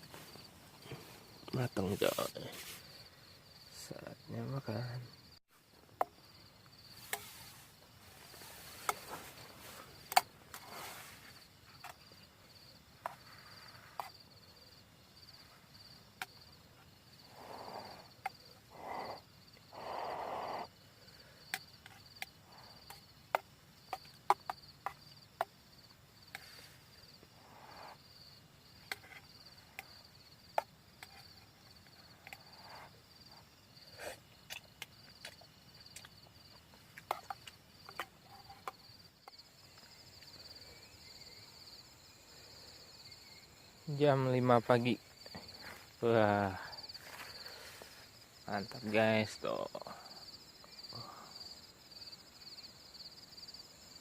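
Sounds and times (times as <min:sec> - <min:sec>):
crickets chirring: 0:00.0 - 0:54.0
rustling: 0:06.9 - 0:12.2.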